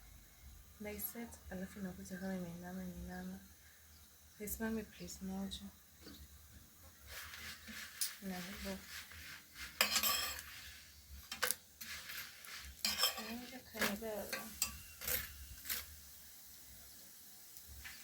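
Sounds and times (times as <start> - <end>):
kitchen utensils clinking: 9.7 - 10.6, 11.3 - 15.9.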